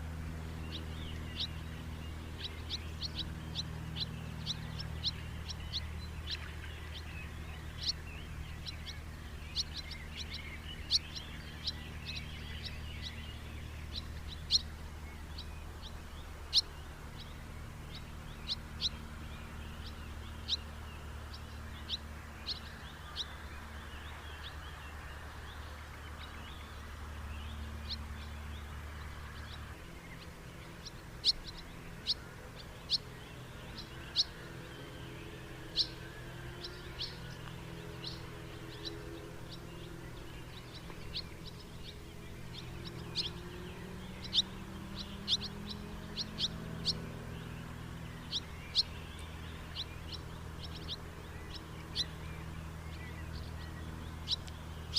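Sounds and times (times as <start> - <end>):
house martins chirping: 0.0 - 54.9
low background hum: 0.0 - 54.9.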